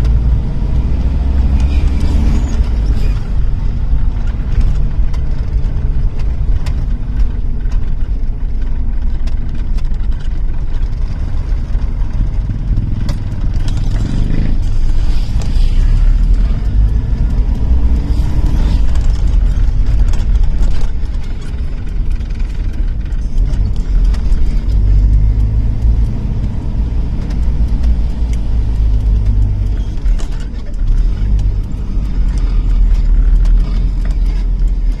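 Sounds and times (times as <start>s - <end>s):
car engine and road noise: 0.0s - 35.0s
light clicks and rattles: 1.3s - 35.0s.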